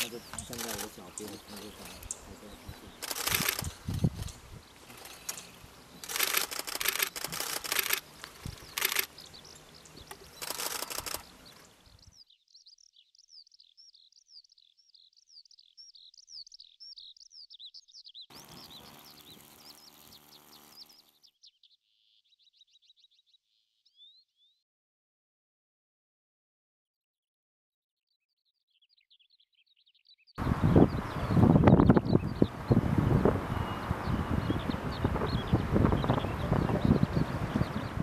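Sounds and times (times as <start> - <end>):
songbird twittering: 0.0 - 24.6, 28.2 - 38.0
wind noise: 1.4 - 9.1, 30.4 - 38.0.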